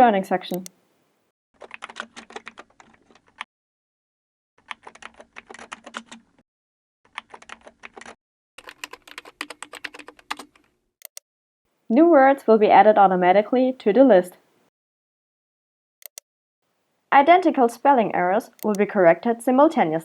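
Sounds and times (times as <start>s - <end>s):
computer keyboard typing: 1.6s - 3.5s, 4.6s - 6.2s, 7.1s - 11.2s.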